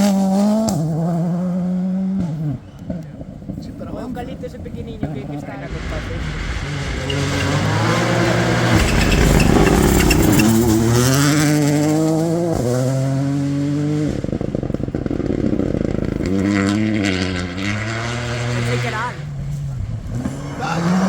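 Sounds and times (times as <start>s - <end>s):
rally car engine accelerating: 0.0s - 21.0s
exhaust crackle on overrun: 3.2s - 11.5s, 14.0s - 21.0s.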